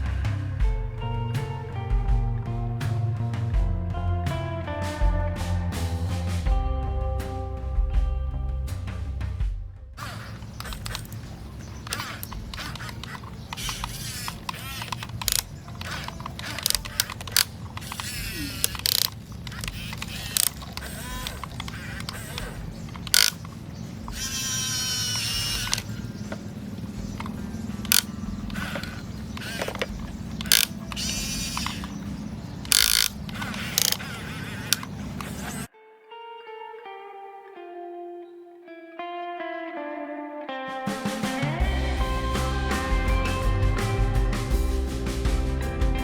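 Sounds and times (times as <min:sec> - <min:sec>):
electric gear motors whining: 0:10.1 - 0:35.7
small electric motors whirring: 0:24.1 - 0:26.0
loud scraping bursts: 0:24.1 - 0:26.2.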